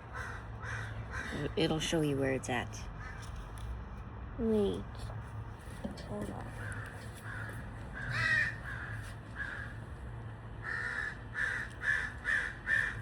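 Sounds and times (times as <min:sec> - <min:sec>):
crow cawing: 0:00.0 - 0:01.6, 0:03.0 - 0:03.3, 0:06.6 - 0:09.8, 0:10.6 - 0:13.0.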